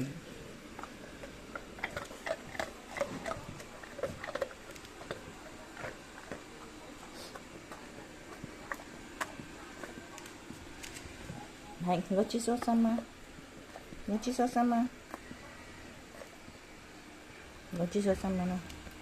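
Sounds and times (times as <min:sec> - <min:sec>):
dog eating wet smacks: 0:00.3 - 0:11.5, 0:15.0 - 0:16.5.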